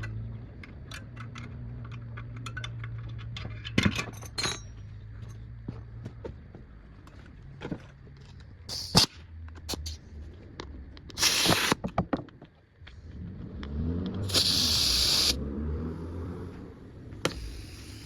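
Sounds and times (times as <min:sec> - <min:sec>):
hissing bursts: 0:08.7 - 0:09.1, 0:11.2 - 0:11.8, 0:14.2 - 0:15.4, 0:17.3 - 0:18.0.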